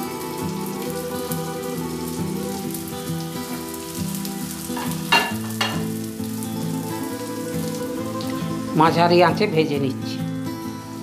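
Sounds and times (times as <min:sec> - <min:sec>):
sharp hisses of hot oil: 0:00.0 - 0:08.7
patties sizzling in oil: 0:00.0 - 0:08.9
soft background music: 0:00.0 - 0:11.0.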